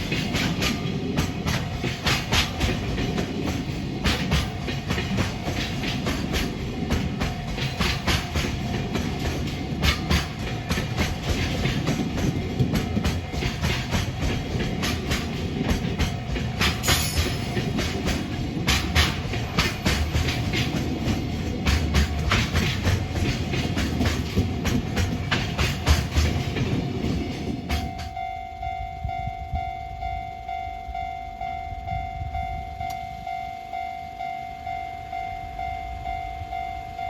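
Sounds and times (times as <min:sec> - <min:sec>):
train wheels clacking on rail joints: 0:00.0 - 0:28.3
train low rumble: 0:00.0 - 0:37.0.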